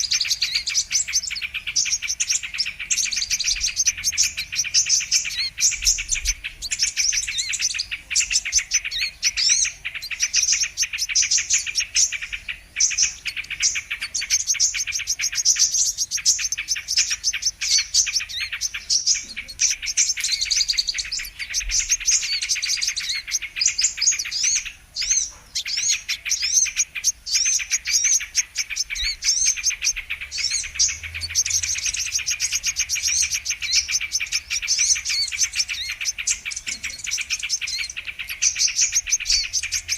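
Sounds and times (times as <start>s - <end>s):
bird chirping rapidly: 0.0s - 39.9s.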